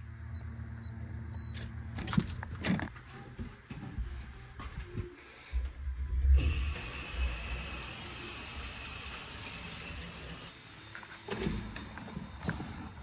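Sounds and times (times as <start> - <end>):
low bumps and rumbling: 2.2 - 6.4
shower spray hissing: 6.4 - 10.5.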